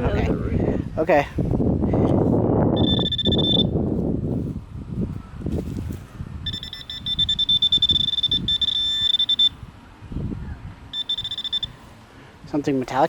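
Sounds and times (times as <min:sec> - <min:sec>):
high electronic tone: 0:02.8 - 0:03.7, 0:06.5 - 0:09.6, 0:11.0 - 0:11.8
soil and grass scraping: 0:03.9 - 0:06.2.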